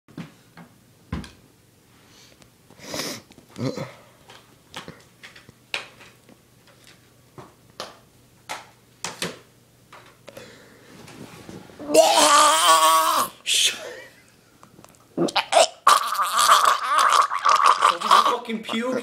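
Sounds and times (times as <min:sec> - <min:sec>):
person sniffing: 0:02.1 - 0:04.0.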